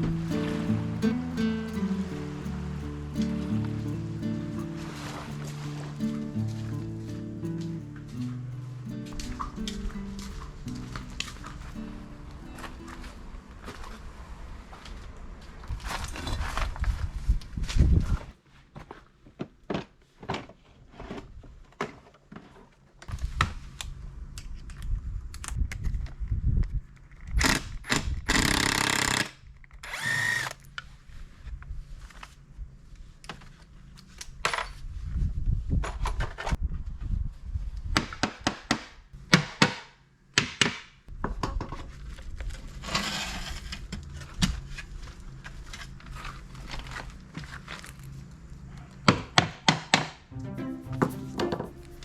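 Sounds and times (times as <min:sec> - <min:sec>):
low steady hum: 0:00.0 - 0:14.7.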